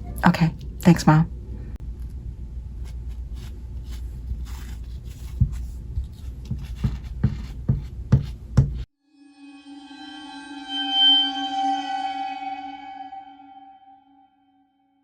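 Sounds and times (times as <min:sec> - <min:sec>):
low hum: 0:09.2 - 0:14.2.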